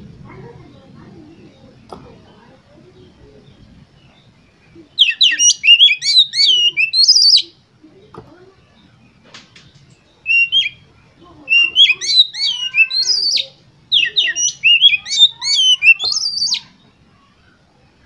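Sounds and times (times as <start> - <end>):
songbird whistling and chattering: 3.4 - 7.6, 10.0 - 16.8.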